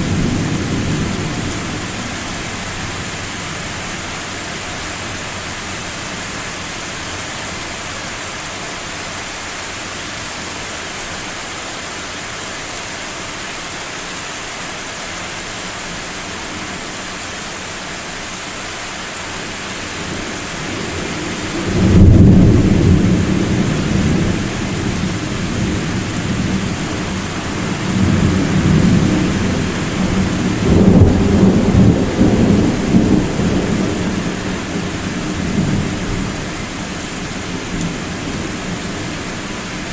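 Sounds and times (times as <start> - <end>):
rain hiss: 0.0 - 39.9
thunder rumbling: 19.9 - 39.9.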